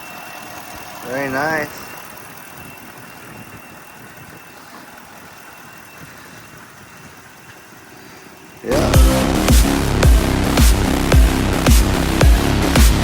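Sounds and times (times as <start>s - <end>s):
truck engine idling: 8.6s - 13.0s.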